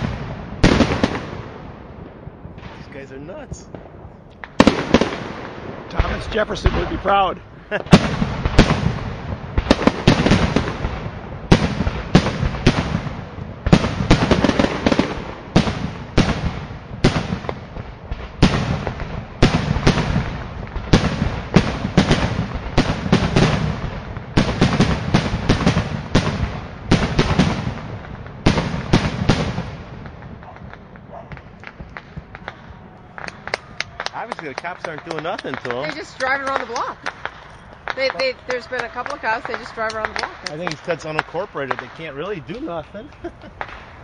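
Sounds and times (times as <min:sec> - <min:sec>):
fireworks exploding with crackling: 0:00.0 - 0:44.0.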